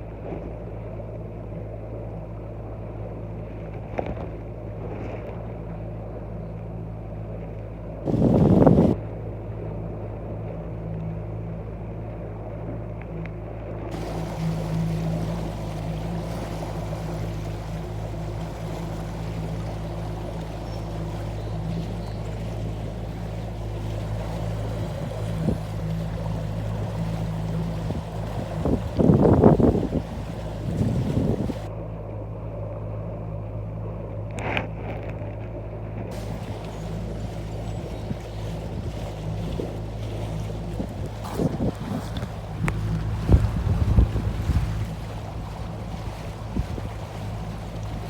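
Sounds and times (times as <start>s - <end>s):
outboard motor humming: 0.0s - 48.0s
water noise: 0.0s - 48.0s
wind buffeting microphone: 8.0s - 9.0s, 13.9s - 31.7s, 36.1s - 48.0s.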